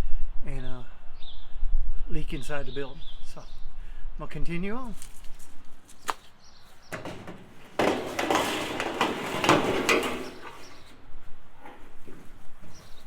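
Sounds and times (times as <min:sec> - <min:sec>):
metal roofing panel knocking: 0:06.9 - 0:11.0
metal panel scraping and rattling: 0:06.9 - 0:13.0.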